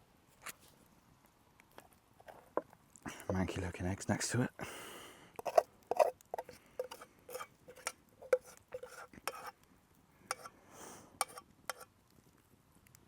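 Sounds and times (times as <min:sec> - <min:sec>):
metal utensil scraping cookware: 0:05.4 - 0:09.5, 0:10.3 - 0:10.5, 0:11.2 - 0:11.9.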